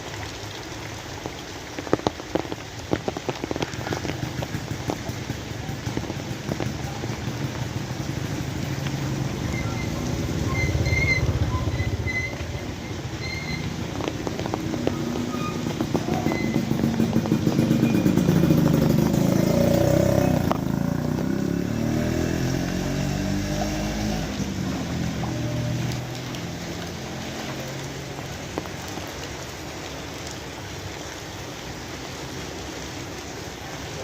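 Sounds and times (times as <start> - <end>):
steady rain falling: 0.0 - 34.0
vehicle engine passing by: 4.3 - 13.0, 14.3 - 28.6.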